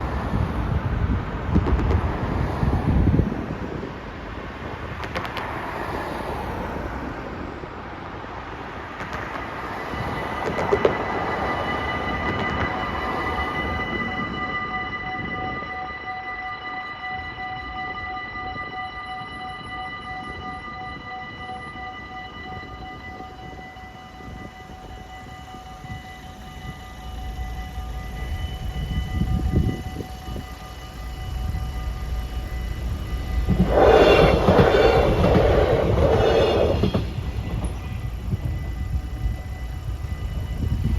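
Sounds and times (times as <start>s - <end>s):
diesel railcar passing: 0.0s - 40.9s
steady high whine: 8.9s - 40.9s
level crossing bells ringing: 9.4s - 40.9s.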